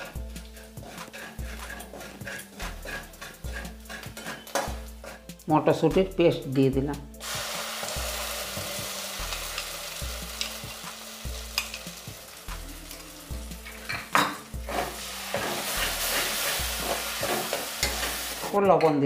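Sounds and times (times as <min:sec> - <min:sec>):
metal spatula scraping and knocking: 0:00.0 - 0:05.6, 0:13.6 - 0:19.0
paste sizzling in hot oil: 0:00.0 - 0:05.6, 0:07.1 - 0:18.6.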